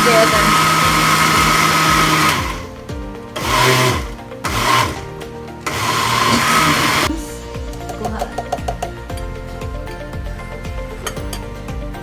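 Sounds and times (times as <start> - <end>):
electric mixer motor whirring: 0.0 - 7.1
background music with steady beat: 0.0 - 12.0.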